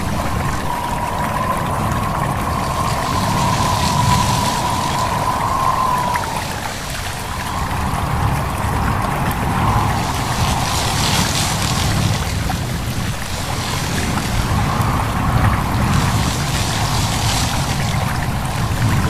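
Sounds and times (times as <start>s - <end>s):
stream babbling: 0.0s - 14.9s
wind rustling leaves: 0.0s - 19.0s.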